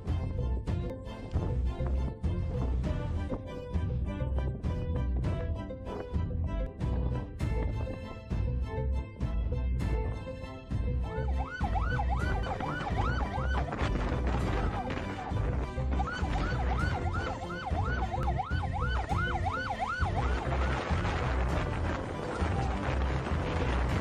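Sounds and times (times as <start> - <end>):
music with low beat: 0.0 - 24.0
emergency siren yelping: 11.3 - 15.4, 16.0 - 21.0.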